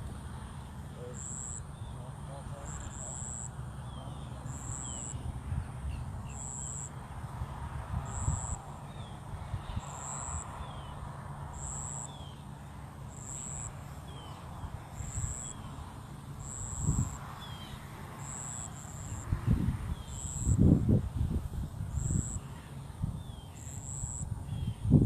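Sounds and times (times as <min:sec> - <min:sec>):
wind rumbling on microphone: 0:04.6 - 0:11.1, 0:16.4 - 0:17.6, 0:18.9 - 0:25.0.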